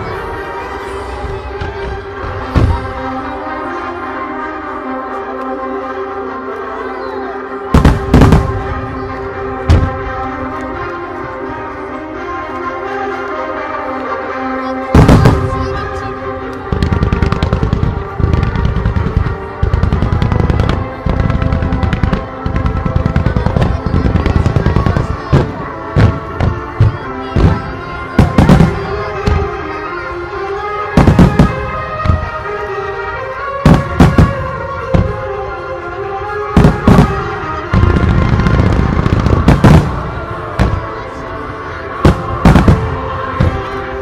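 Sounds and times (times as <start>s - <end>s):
fireworks launching and bursting: 0.0s - 3.0s, 7.7s - 9.0s, 15.0s - 29.6s, 30.5s - 32.7s, 33.6s - 35.3s, 36.4s - 41.2s, 42.0s - 44.0s
loud fireworks booms: 0.0s - 3.2s, 7.7s - 10.3s, 14.9s - 29.7s, 30.5s - 32.6s, 33.6s - 35.4s, 36.2s - 41.2s, 41.9s - 44.0s
music playing: 0.0s - 44.0s.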